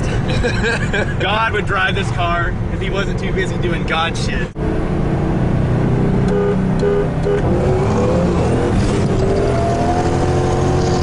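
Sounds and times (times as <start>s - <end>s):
car engine accelerating hard: 4.5s - 11.0s.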